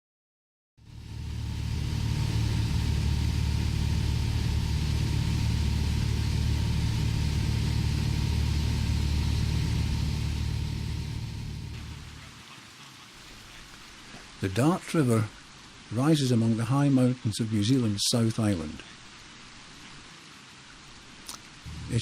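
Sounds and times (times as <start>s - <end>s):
boat engine rumbling: 0.8s - 12.6s, 21.7s - 22.0s.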